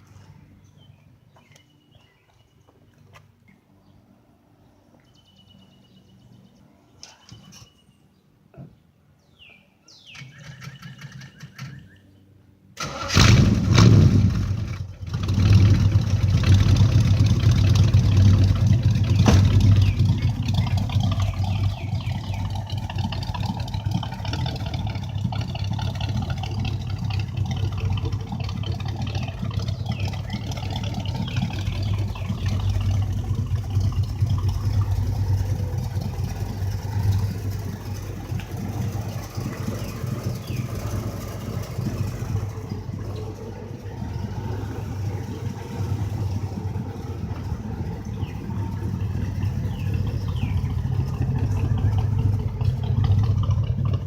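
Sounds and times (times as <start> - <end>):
car engine revving and idling: 12.8 - 54.0.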